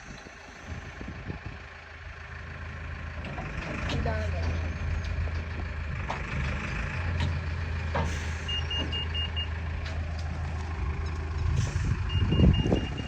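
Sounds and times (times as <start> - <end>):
diesel engine running: 0.0 - 13.0
reversing alarm beeps: 8.4 - 9.6, 12.0 - 13.0.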